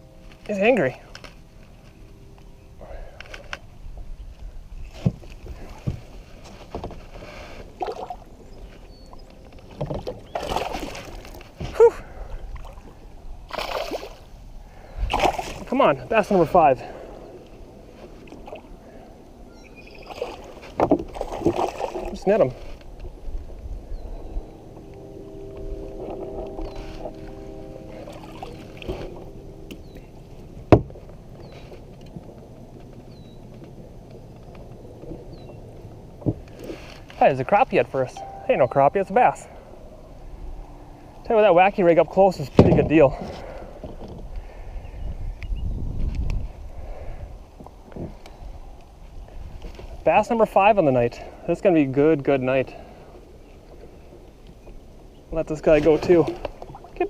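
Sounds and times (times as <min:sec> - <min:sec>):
faint multi-tone hum: 0:00.0 - 0:37.1
water splashing: 0:07.7 - 0:08.3, 0:10.0 - 0:11.8, 0:12.5 - 0:14.3, 0:15.1 - 0:16.7, 0:19.9 - 0:22.5
short high chirp: 0:38.2 - 0:39.7.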